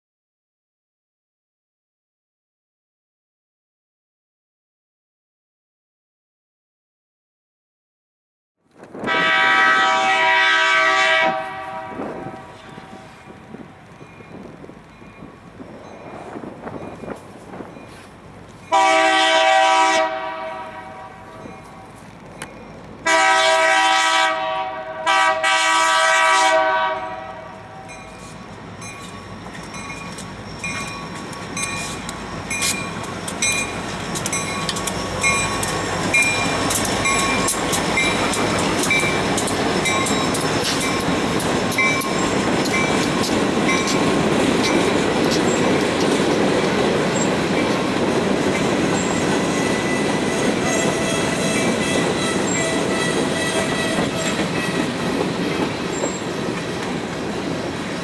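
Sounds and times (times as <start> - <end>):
train engines passing: 8.7 - 58.0
locomotive air horn blasts: 9.0 - 13.2, 18.7 - 21.5, 23.0 - 27.9, 49.6 - 54.9
wheels clicking: 28.9 - 52.9.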